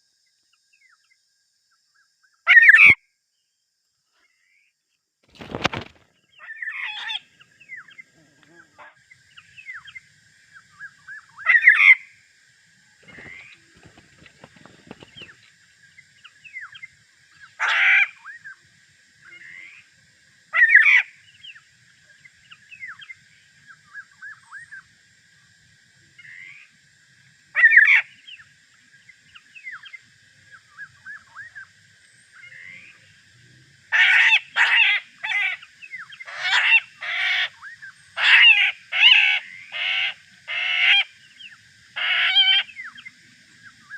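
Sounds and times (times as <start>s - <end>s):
soft whistled bird chirps: 0.0s - 4.8s, 5.4s - 8.2s, 9.0s - 12.2s, 12.8s - 19.9s, 20.5s - 25.6s, 27.6s - 33.6s, 35.4s - 43.9s
harsh nasal bird calls: 33.9s - 43.0s.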